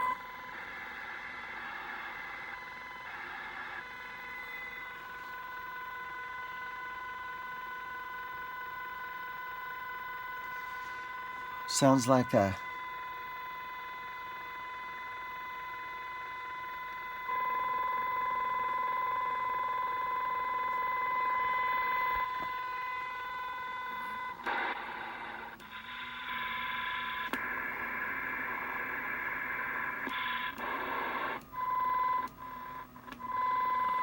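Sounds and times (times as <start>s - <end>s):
radio interference tone: 9.9s - 12.9s
rough noisy radio interference: 9.9s - 12.9s.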